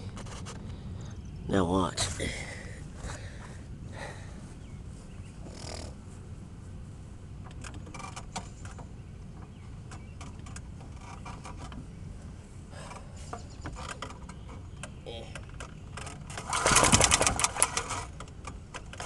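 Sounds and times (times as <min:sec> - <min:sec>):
steady low rumble: 0:00.0 - 0:11.0
lawnmower pull-starter rattling clicks: 0:15.4 - 0:19.0.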